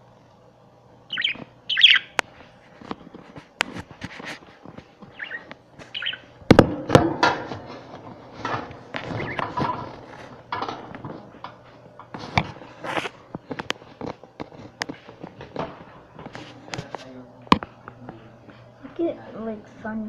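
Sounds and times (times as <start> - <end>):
budgerigars chirping: 1.1 - 2.2, 5.1 - 6.3, 9.1 - 9.6.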